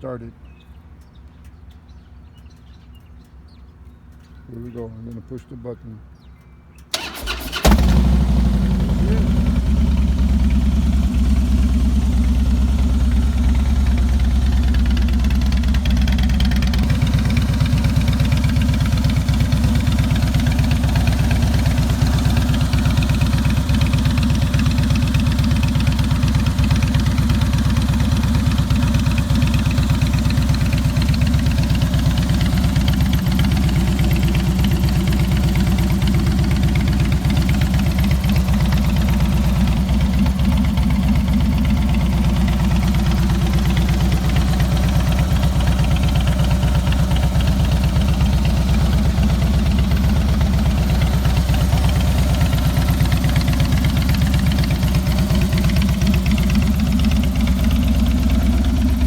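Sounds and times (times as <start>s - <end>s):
motorcycle engine idling: 6.9s - 59.0s.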